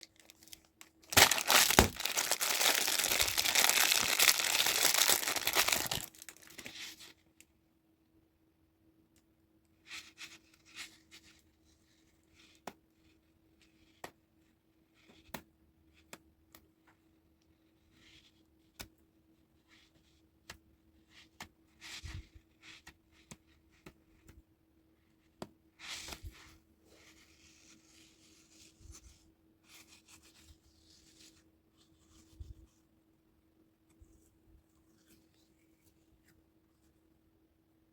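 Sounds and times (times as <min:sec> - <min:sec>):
packaging rustling: 0:00.0 - 0:06.8.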